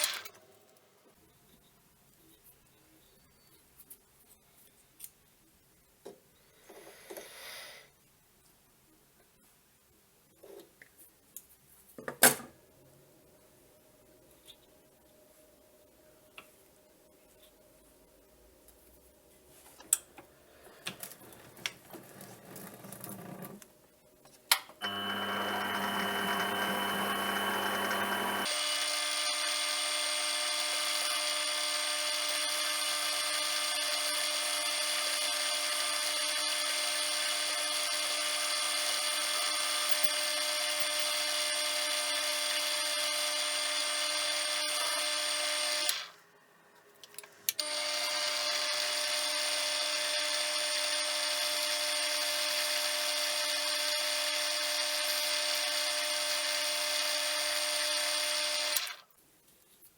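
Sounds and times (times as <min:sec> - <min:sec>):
lathe motor whining: 0:24.8 - 0:46.1, 0:47.6 - 0:59.0.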